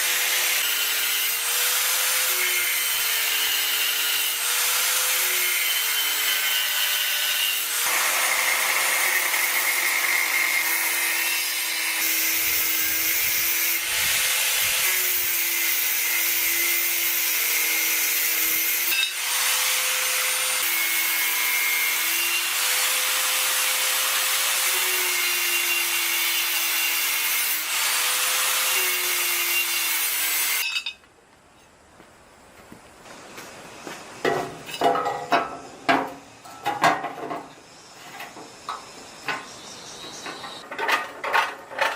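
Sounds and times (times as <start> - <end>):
power grinder on metal: 0.0 - 30.7.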